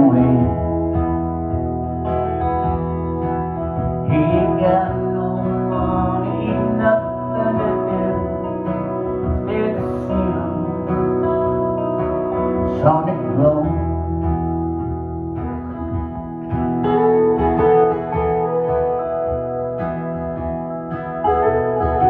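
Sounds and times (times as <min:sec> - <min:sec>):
person singing: 0:00.0 - 0:01.2, 0:04.0 - 0:14.0
strummed acoustic guitar: 0:00.0 - 0:22.0.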